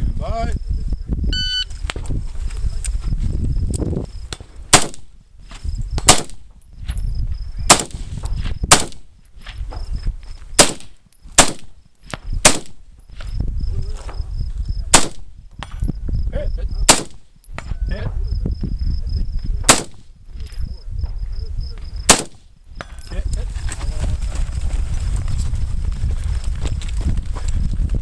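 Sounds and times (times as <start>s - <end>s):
gunshots: 4.7s - 5.1s, 6.0s - 6.4s, 7.7s - 8.0s, 8.7s - 9.0s, 10.6s - 11.7s, 12.4s - 12.8s, 14.9s - 15.3s, 16.8s - 17.3s, 19.6s - 20.1s, 22.1s - 22.5s.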